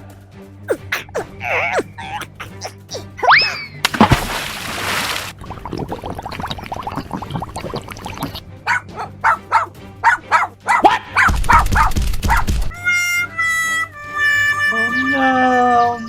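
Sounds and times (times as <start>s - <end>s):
background music: 0.0s - 4.6s, 5.3s - 16.0s
short sharp animal calls: 0.7s - 3.6s.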